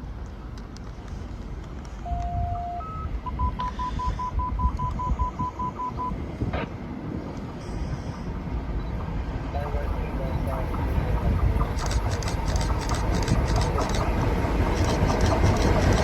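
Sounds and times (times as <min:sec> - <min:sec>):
low outdoor rumble: 0:00.0 - 0:16.0
rapid even beeps: 0:02.2 - 0:06.2, 0:11.6 - 0:16.0.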